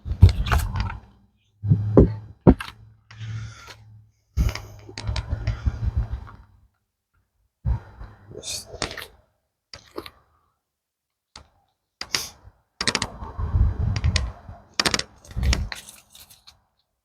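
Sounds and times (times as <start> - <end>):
low hum: 1.6 - 6.3
sharp knocks on wooden hive: 1.7 - 2.6.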